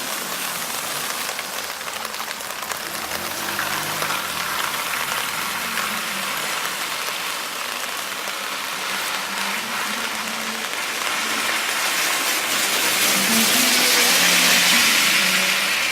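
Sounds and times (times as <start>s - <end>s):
heavy rain on road: 0.0s - 15.9s.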